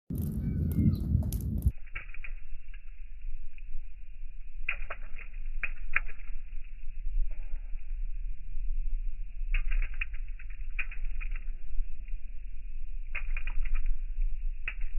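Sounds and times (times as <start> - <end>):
low rumble: 0.1 - 14.9
raindrops pattering: 0.1 - 14.9.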